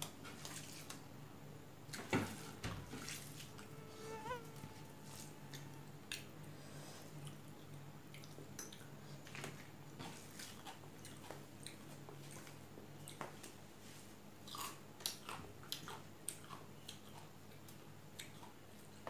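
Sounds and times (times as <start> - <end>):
faint low hum: 0.0 - 19.0
wet chewing and mouth clicks: 14.4 - 18.9.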